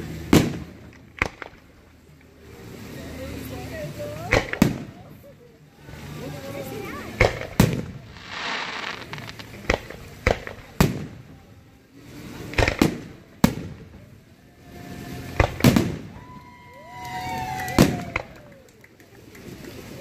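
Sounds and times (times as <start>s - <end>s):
fireworks crackling: 0.0s - 20.0s
fireworks bangs: 0.2s - 1.7s, 4.3s - 5.2s, 7.1s - 11.4s, 12.5s - 14.1s, 15.3s - 16.2s, 17.7s - 18.4s.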